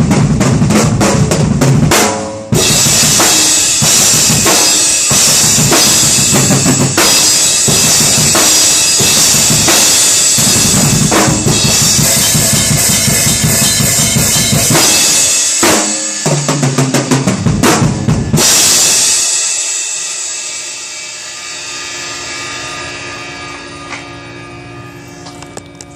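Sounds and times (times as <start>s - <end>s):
drum kit playing: 0.0s - 25.9s
cymbals ringing: 2.5s - 16.7s, 18.1s - 25.9s.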